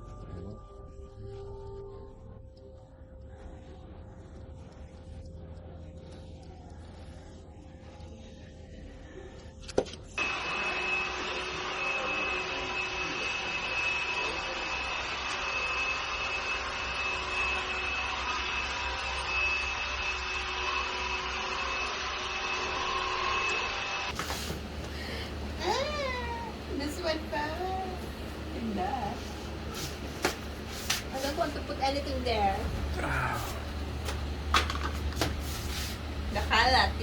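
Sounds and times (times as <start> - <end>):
small electric motor whining: 10.2 - 37.0.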